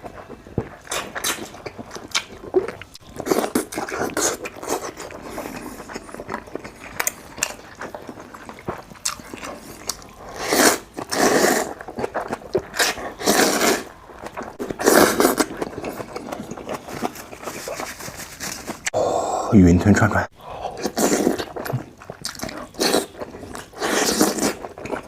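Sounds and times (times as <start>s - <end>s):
chewing with wet clicks: 0.0s - 10.3s, 10.9s - 13.2s, 20.8s - 25.0s
slurping: 0.8s - 19.0s, 20.6s - 25.0s.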